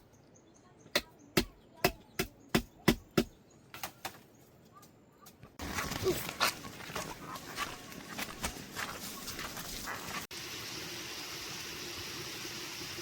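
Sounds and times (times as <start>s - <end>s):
sharp chopping strikes: 1.0s - 3.4s.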